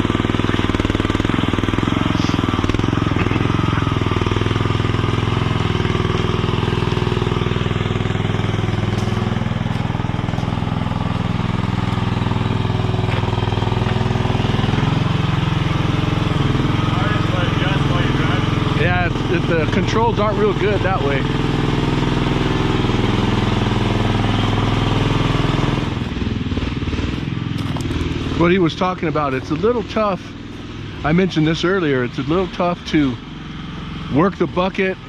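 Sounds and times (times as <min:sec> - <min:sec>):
small engine under hydraulic load: 0:00.0 - 0:26.2.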